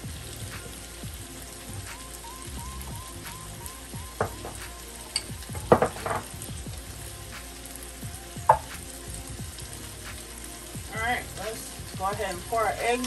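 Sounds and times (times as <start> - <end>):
potatoes sizzling in oil: 0.0 - 13.0
kitchenware clinking: 4.2 - 6.4.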